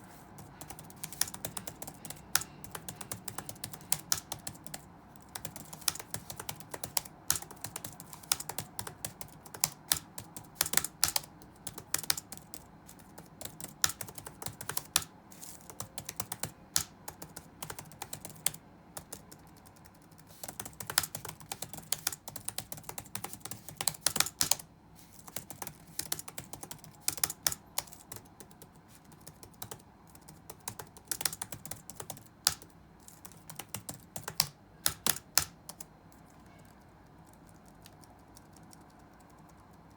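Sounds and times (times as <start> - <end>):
faint low hum: 0.0 - 39.9
typing on computer keyboard: 0.4 - 39.9.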